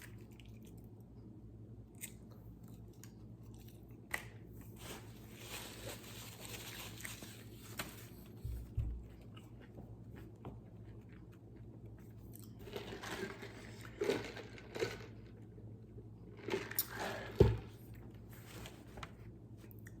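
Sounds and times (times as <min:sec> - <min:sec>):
crunchy food being chewed: 0:01.9 - 0:04.4, 0:09.2 - 0:18.0.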